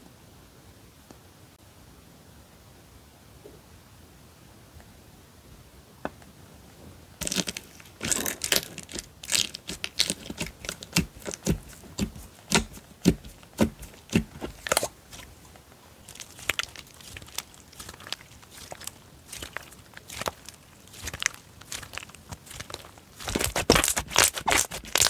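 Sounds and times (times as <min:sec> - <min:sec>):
slime squishing pops and crackles: 0:07.2 - 0:15.3, 0:16.1 - 0:25.0.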